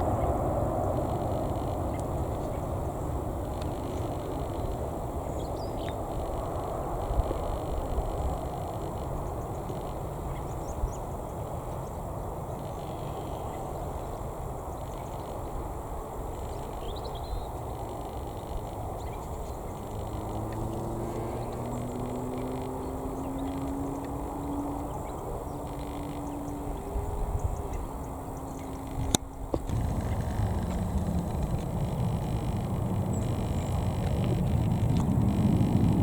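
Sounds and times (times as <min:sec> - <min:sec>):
distant jet airliner rumble: 0:00.0 - 0:12.0, 0:13.4 - 0:36.0
low engine hum rising in pitch: 0:17.8 - 0:27.0, 0:28.4 - 0:36.0.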